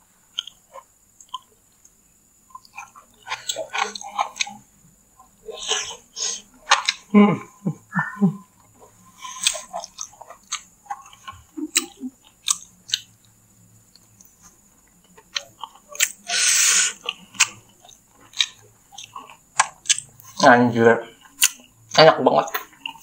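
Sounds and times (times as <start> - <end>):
man chewing with wet smacks: 0.3 - 7.1, 8.0 - 20.4, 21.1 - 23.0
short hissing noise: 16.3 - 17.0.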